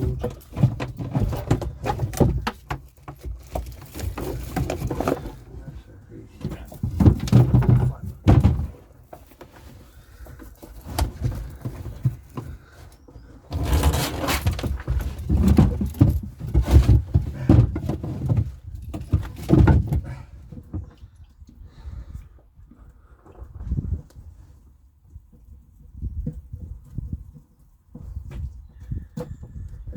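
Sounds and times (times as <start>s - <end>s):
objects being handled and clattering: 0.0s - 21.2s.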